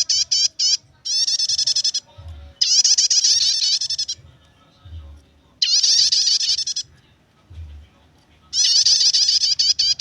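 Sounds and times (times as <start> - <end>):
bird chattering song: 0.0 - 4.2, 5.6 - 6.9, 8.6 - 10.0.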